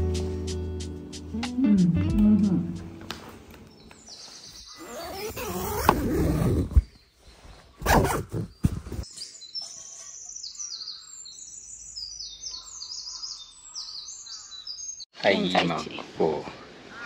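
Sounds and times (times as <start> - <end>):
small songbirds singing: 3.7 - 7.6, 8.3 - 15.2.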